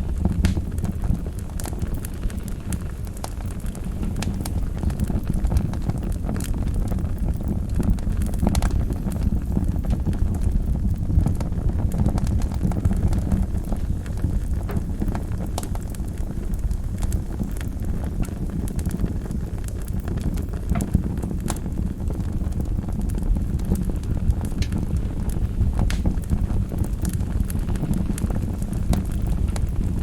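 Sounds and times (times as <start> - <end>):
fire flames rumbling: 0.0 - 30.0
logs crackling and popping: 0.0 - 30.0.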